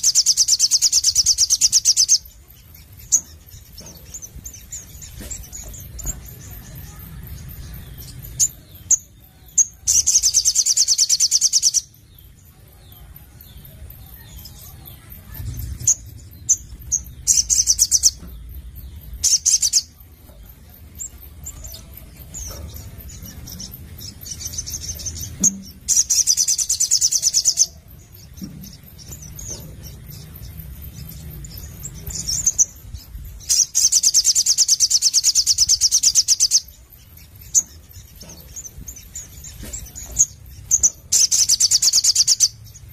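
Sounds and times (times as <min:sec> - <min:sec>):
bird trilling: 0:00.0 - 0:12.0, 0:14.1 - 0:20.0, 0:31.2 - 0:42.6
bird chirping: 0:00.0 - 0:42.9.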